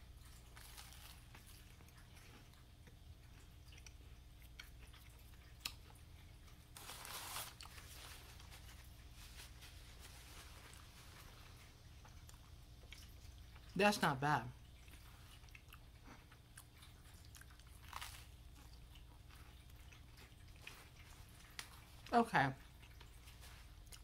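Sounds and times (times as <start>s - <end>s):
person chewing toast: 0.0s - 13.8s, 14.6s - 24.0s.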